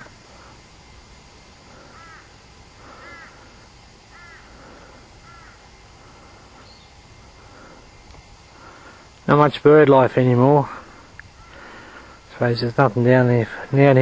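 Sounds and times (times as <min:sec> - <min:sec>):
crow cawing: 0:01.7 - 0:06.8, 0:10.8 - 0:12.3.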